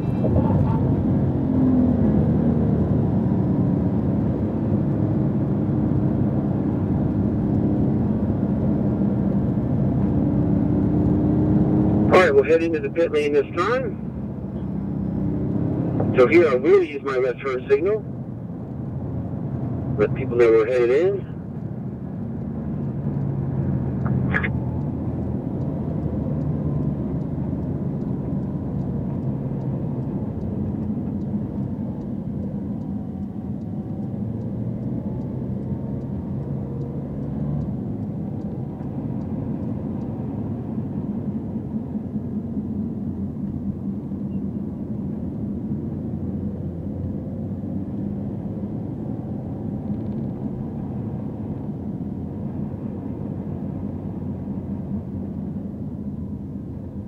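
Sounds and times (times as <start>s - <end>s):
car engine running: 0.0s - 2.4s, 12.1s - 47.2s
tyre and road noise: 0.0s - 57.0s.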